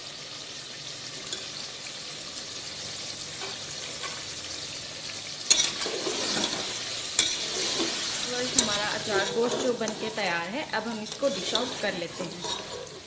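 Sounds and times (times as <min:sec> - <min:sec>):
meat sizzling in a pot: 0:00.0 - 0:13.0
metal spatula scraping pot: 0:05.5 - 0:13.0.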